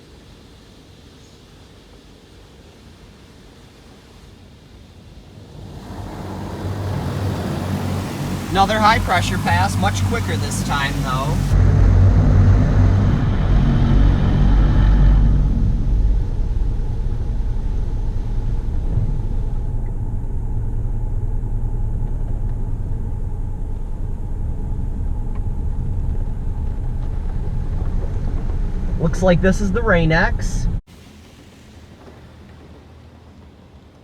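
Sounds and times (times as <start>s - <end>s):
water jets spraying car: 0.0s - 11.6s, 30.9s - 34.0s
steady low rumble: 4.7s - 34.0s.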